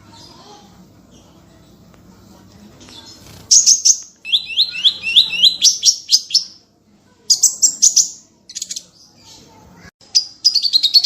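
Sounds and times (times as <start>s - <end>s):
small songbird singing: 2.8s - 6.6s, 7.2s - 11.0s.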